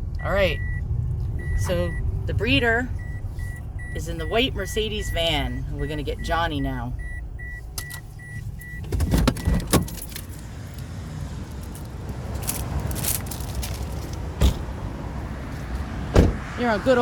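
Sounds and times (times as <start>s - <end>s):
low vehicle rumble: 0.0s - 17.0s
vehicle warning chime beeping: 0.1s - 10.4s
car door clicks and knocks: 8.8s - 10.2s, 14.4s - 14.7s, 16.1s - 16.5s.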